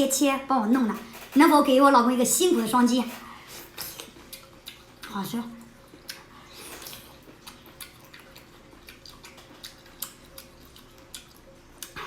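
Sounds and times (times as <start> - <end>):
person chewing wetly: 3.6 - 12.0.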